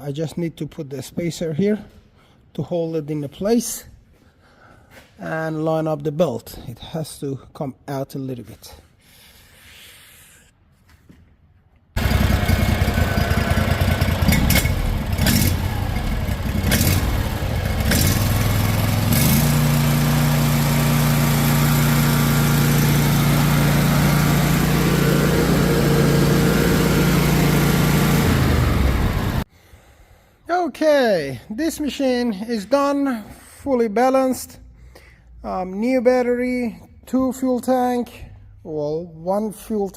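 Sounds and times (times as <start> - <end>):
power trowel engine running: 12.0 - 29.5.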